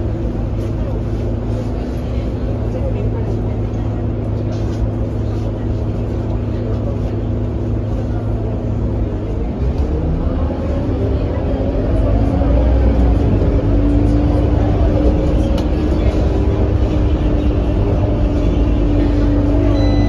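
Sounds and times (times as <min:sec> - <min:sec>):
bus diesel engine droning: 0:00.0 - 0:20.0.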